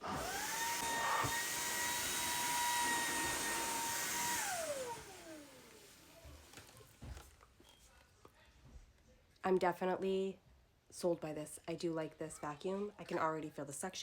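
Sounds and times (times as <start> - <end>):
vacuum cleaner motor whine: 0.0 - 7.2.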